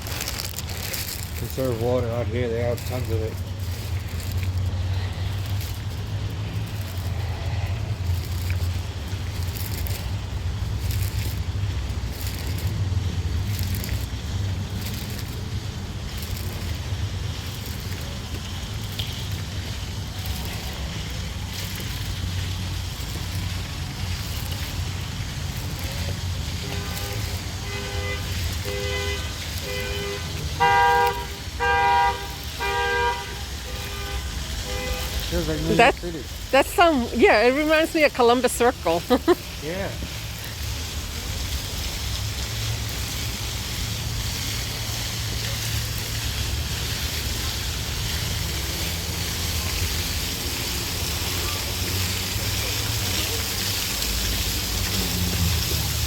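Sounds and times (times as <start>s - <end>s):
water fountain splashing: 0.0s - 56.0s
two-tone car horn honking: 26.7s - 35.2s.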